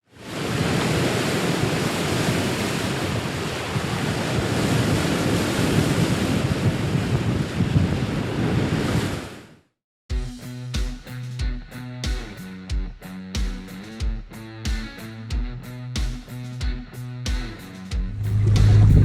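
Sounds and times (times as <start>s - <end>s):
sea washing: 0.1s - 9.3s
wind buffeting the microphone: 0.2s - 9.4s, 18.1s - 19.0s
guitar music: 10.1s - 19.0s.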